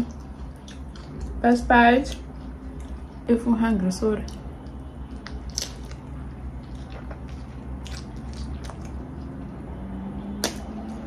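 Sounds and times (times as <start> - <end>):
person chewing a burger: 0.0 - 1.4, 2.1 - 3.2, 4.3 - 9.6.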